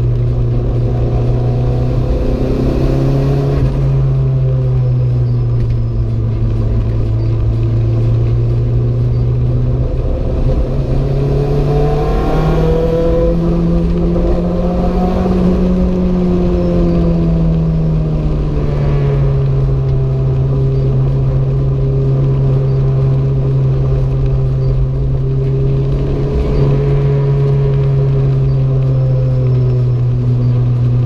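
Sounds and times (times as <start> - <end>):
car engine running under load: 0.0 - 31.0
low road rumble: 0.0 - 31.0.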